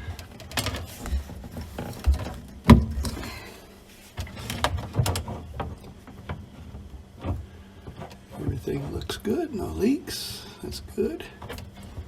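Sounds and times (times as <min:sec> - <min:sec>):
hands working sink plumbing: 0:00.0 - 0:03.5.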